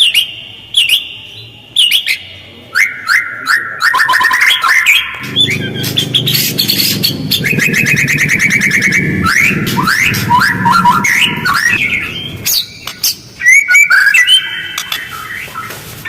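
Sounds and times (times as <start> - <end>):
bird song with sweeping notes: 0.0 - 16.0
bird rapid trill: 1.8 - 15.8
bird harsh rasping chatter: 3.6 - 15.9.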